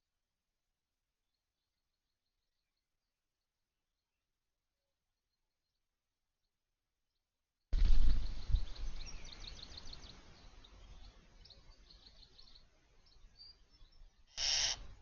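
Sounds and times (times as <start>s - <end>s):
small birds chirping: 7.8s - 15.0s.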